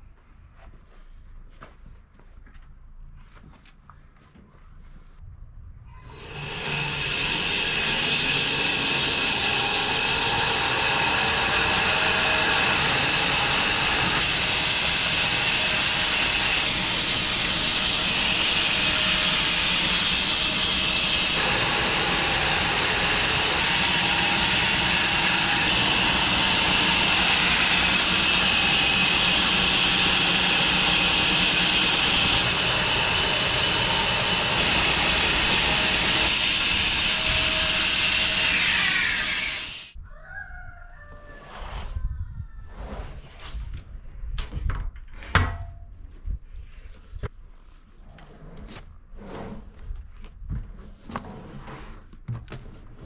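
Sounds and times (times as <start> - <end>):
bandsaw mill cutting through log: 6.1 - 40.0.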